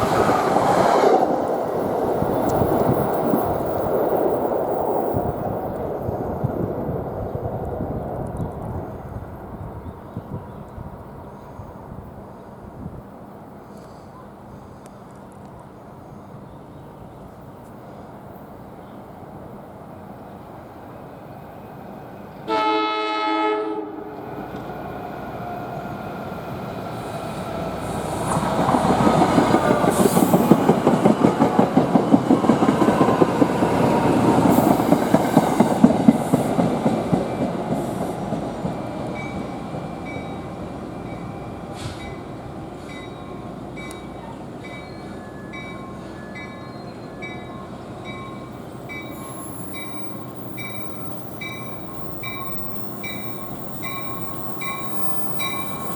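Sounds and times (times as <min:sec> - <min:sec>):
train horn blast: 0:22.4 - 0:24.3
train wheels clicking over rail joints: 0:27.0 - 0:40.3.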